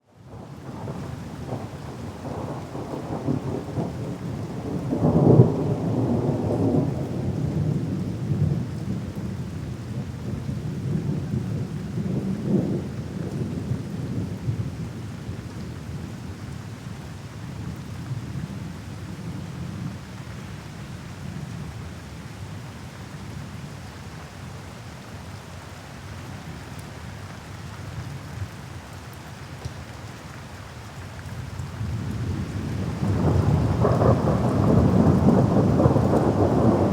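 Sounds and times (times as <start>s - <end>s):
steady rain: 0.0s - 36.9s
thunder rumbling: 31.8s - 36.9s.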